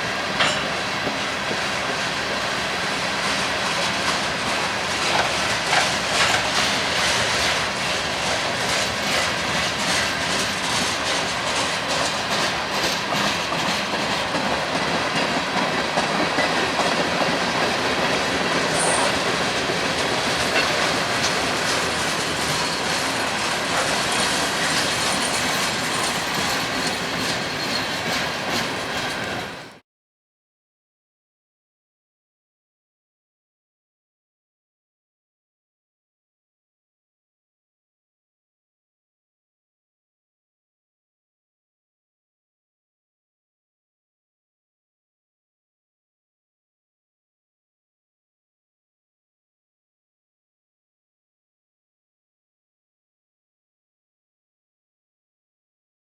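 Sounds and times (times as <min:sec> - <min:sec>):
train wheels clicking over rail joints: 0:00.0 - 0:29.8
wheel flange squeal: 0:18.6 - 0:19.3, 0:20.4 - 0:29.7.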